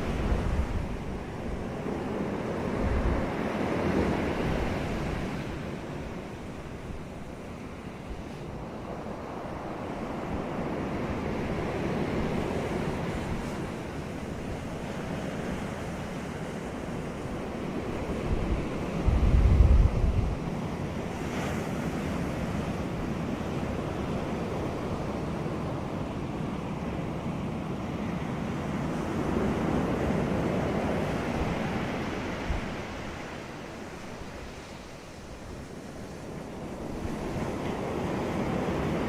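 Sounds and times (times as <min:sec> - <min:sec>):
wind buffeting microphone: 0:00.0 - 0:26.0
ocean surf breaking: 0:00.0 - 0:39.0.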